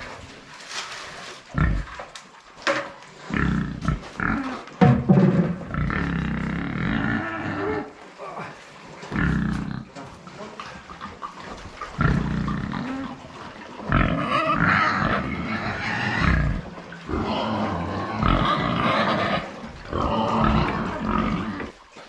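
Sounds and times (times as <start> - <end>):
pig calling loudly: 3.3 - 4.8, 5.7 - 8.0, 9.1 - 21.8.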